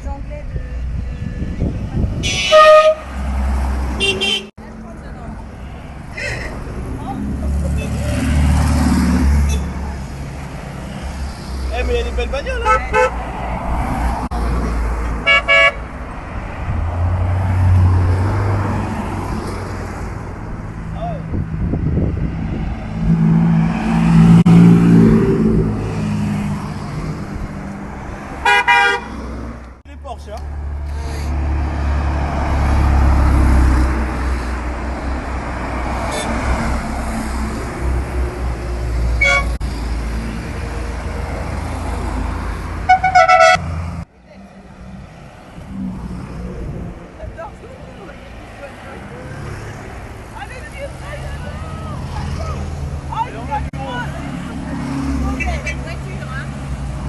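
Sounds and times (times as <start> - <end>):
engine rumbling: 0.0 - 57.0
car horn toots: 2.2 - 3.2, 4.0 - 4.5, 12.6 - 13.2, 15.2 - 15.9, 28.4 - 29.2, 39.2 - 39.6, 42.9 - 43.6.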